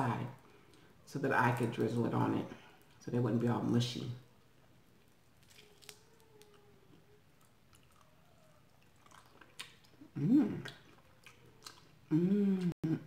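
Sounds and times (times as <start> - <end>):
chewing and mouth clicks: 5.4 - 12.7.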